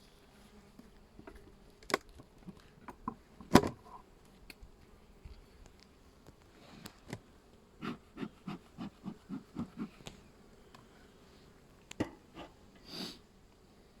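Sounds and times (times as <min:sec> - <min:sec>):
bees humming: 0:07.6 - 0:11.6.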